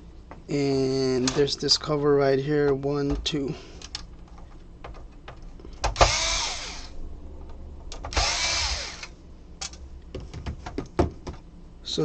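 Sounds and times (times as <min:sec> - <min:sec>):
electric screwdriver whine: 0:06.0 - 0:07.0, 0:08.1 - 0:09.1.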